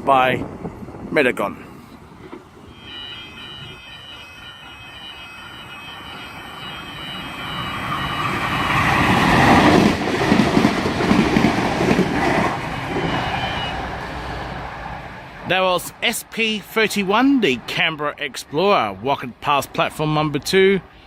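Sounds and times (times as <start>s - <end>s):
diesel railcar passing: 1.8s - 18.6s
rhythmic clatter of train cars: 2.2s - 15.9s.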